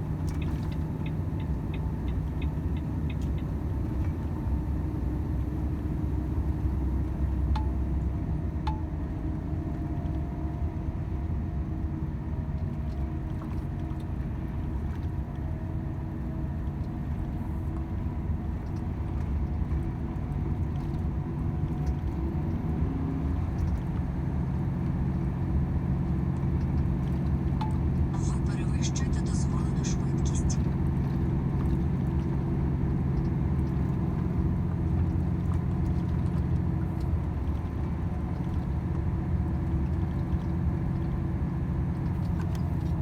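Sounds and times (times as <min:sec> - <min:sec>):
road rumble: 0:22.0 - 0:43.0
truck diesel engine cruising: 0:27.9 - 0:42.8.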